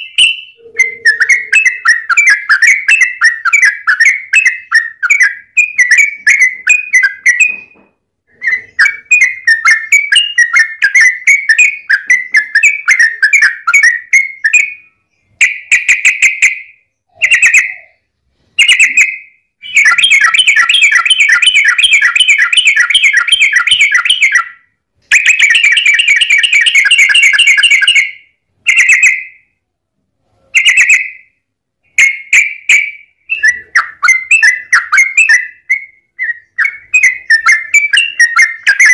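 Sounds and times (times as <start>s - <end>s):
bulbul singing chattering phrases: 0.0s - 7.6s.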